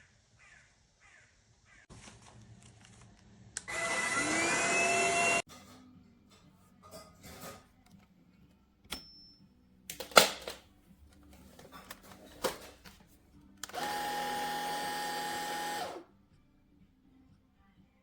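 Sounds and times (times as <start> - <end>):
cordless vacuum cleaner whine: 3.6 - 5.5, 13.6 - 16.1
plastic parts clicking: 9.9 - 10.6, 11.2 - 13.0.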